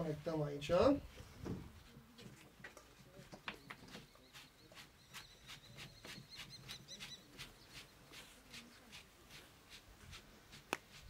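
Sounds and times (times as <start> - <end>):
faint small bird chirping: 3.4 - 8.9
wavering high bird twitter: 3.5 - 8.1.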